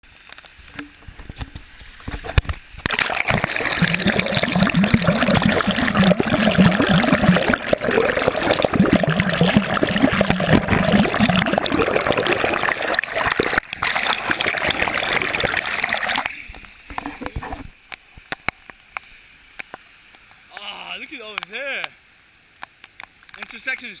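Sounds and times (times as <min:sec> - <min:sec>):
water splashing and rushing: 0:00.1 - 0:17.8.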